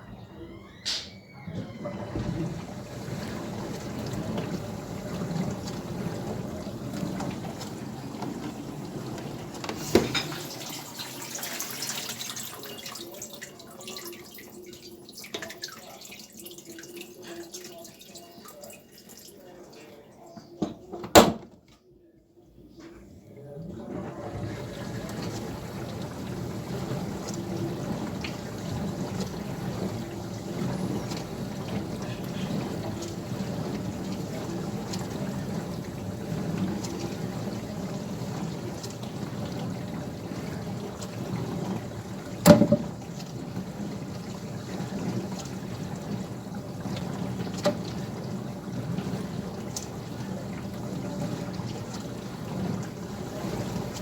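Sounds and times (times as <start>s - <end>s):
dishwasher water spraying: 1.7s - 19.5s, 23.7s - 54.0s.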